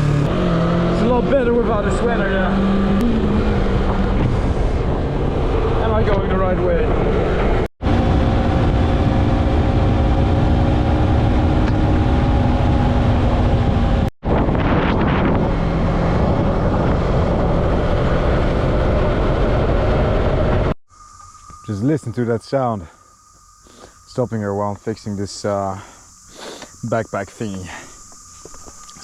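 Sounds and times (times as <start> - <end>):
motorcycle engine cruising: 0.0 - 20.8
wind rush on microphone: 2.6 - 20.8.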